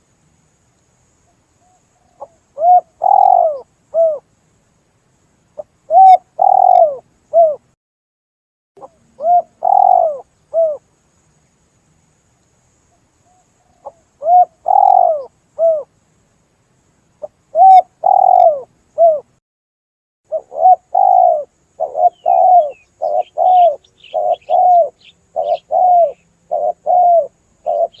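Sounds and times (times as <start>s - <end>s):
small bird chirping: 1.2s - 4.2s, 5.5s - 7.6s, 8.8s - 11.6s, 12.4s - 15.9s, 17.1s - 19.3s, 20.3s - 28.0s
dove cooing: 1.6s - 4.2s, 5.6s - 7.6s, 8.8s - 10.8s, 13.6s - 15.9s, 17.2s - 19.3s, 20.3s - 28.0s.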